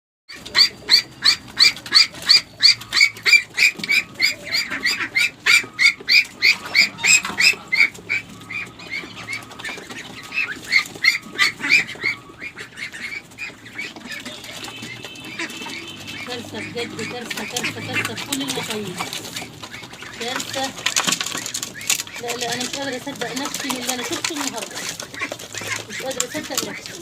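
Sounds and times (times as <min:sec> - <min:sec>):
duck squawking: 0:00.3 - 0:27.0.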